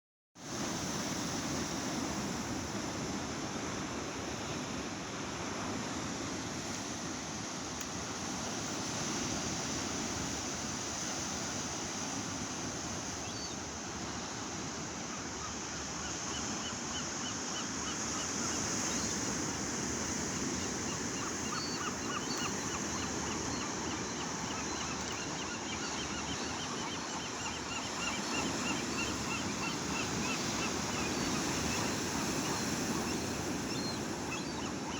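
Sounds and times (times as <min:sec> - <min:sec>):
gulls calling: 0:20.2 - 0:34.9.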